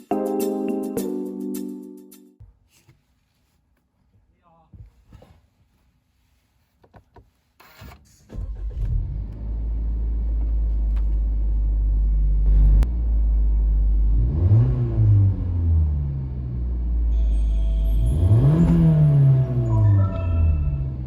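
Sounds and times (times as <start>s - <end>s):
car engine starting and idling: 8.2s - 21.0s.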